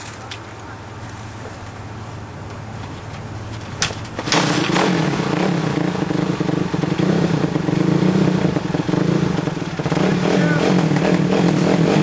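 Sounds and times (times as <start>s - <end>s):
dirt bike engine starting: 3.8s - 12.0s.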